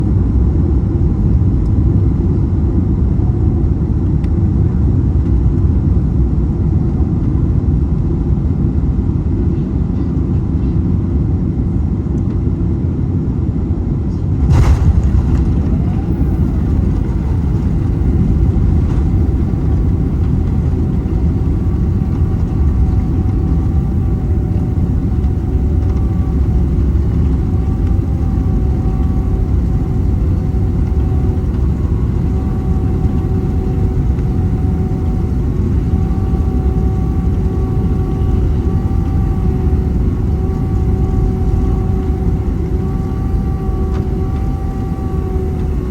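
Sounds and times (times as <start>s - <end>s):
faint whining engine tones: 0.0s - 45.9s
jet low rumble: 0.0s - 45.9s
wheels touching down thump: 14.4s - 21.0s.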